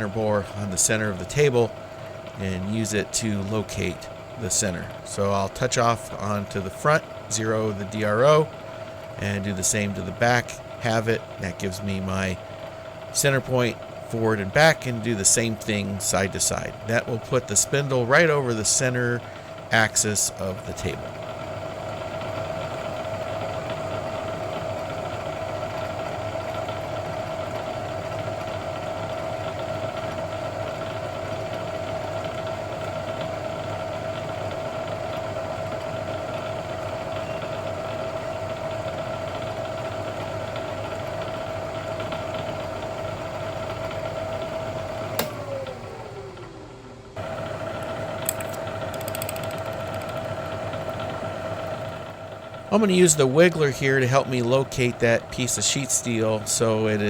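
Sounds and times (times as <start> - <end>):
milling machine spindle whine: 0.0 - 57.0
switch click: 45.2 - 45.4, 48.2 - 50.3.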